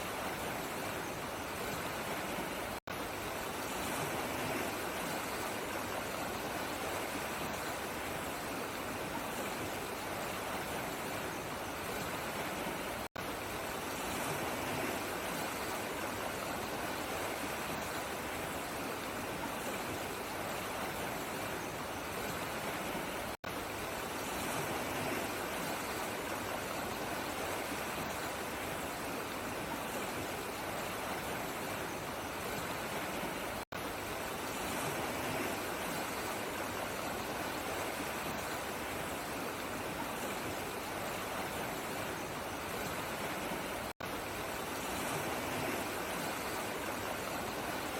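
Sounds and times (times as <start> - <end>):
running water rushing: 0.0 - 47.9.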